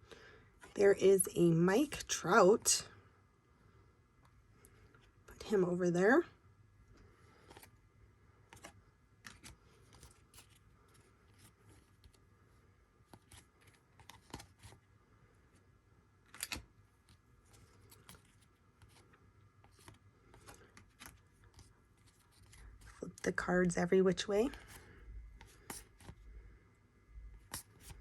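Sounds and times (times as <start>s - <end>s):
trading cards sliding and tapping: 27.4s - 28.0s.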